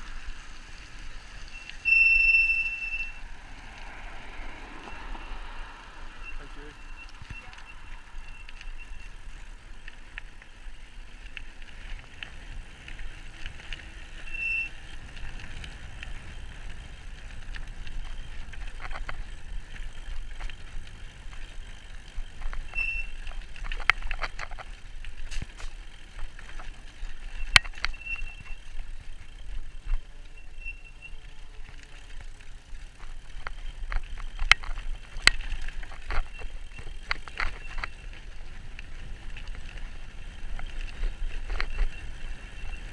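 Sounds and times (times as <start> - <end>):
rattles and clicks over bumps: 0.0 - 42.9
tyre and frame noise: 0.0 - 42.9.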